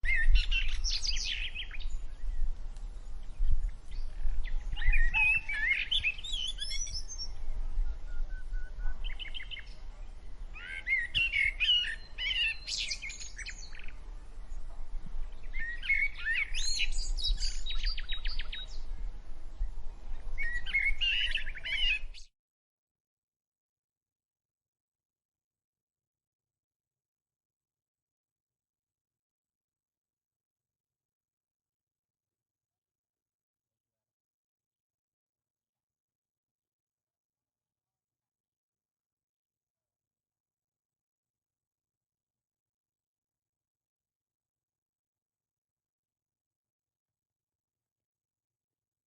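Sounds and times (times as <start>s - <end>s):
songbird chirping and trilling: 0.0s - 22.3s.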